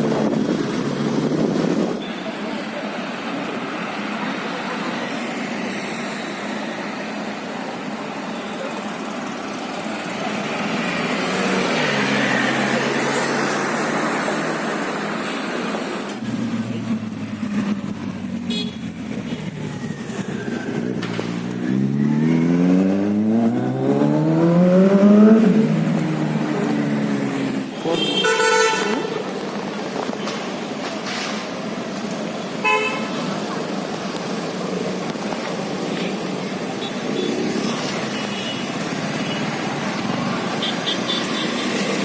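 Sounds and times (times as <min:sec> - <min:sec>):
road traffic noise: 0:00.0 - 0:42.0
car engine accelerating: 0:19.0 - 0:27.7.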